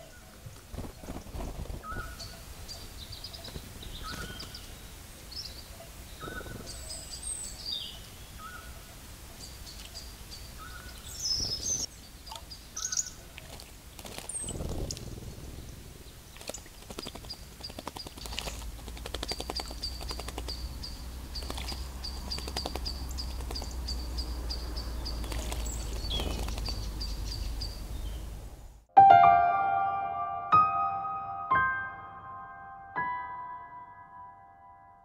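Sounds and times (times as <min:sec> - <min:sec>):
wings fluttering: 0:00.0 - 0:04.8, 0:06.2 - 0:07.1, 0:10.6 - 0:11.9, 0:13.2 - 0:28.4
water splashing: 0:13.2 - 0:24.2, 0:24.9 - 0:27.0
low rumble: 0:14.4 - 0:16.4
soft piano music: 0:28.9 - 0:35.0.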